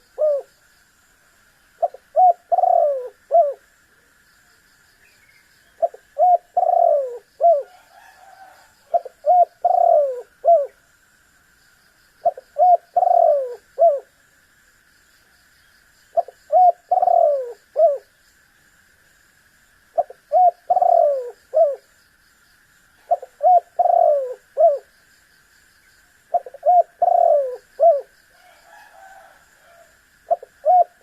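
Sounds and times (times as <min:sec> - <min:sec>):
dove cooing: 0:00.0 - 0:00.5, 0:01.8 - 0:03.7, 0:05.8 - 0:10.8, 0:12.2 - 0:14.1, 0:16.2 - 0:18.1, 0:20.0 - 0:21.9, 0:23.0 - 0:24.9, 0:26.3 - 0:31.0
faint high hiss: 0:00.0 - 0:31.0.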